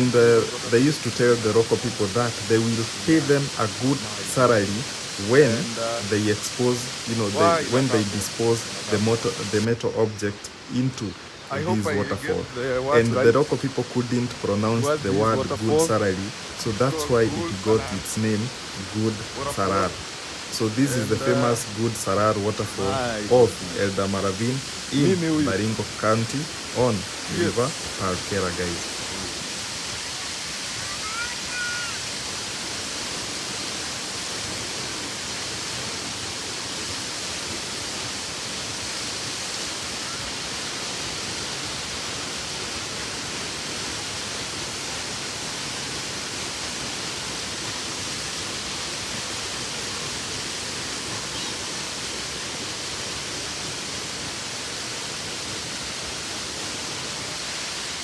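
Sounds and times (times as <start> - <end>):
waterfall crashing onto rocks: 0.0 - 58.0.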